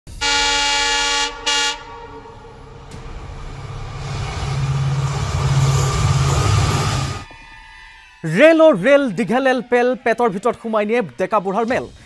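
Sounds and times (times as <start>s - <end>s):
locomotive horn blasts: 0.1s - 5.0s
rumble of train passing: 0.2s - 8.2s.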